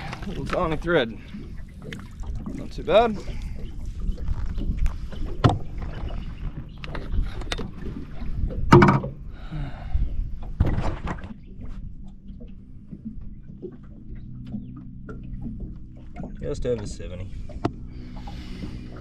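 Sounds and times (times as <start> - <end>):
water splashing: 0.0 - 9.3, 10.5 - 19.0
wind rumbling on microphone: 0.0 - 19.0
sharp knocks on boat: 8.6 - 9.2, 10.5 - 11.8.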